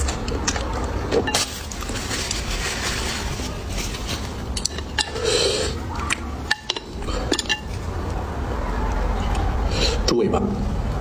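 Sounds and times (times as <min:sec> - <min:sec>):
utensils clinking against dishes: 0:04.0 - 0:05.6, 0:06.4 - 0:07.8.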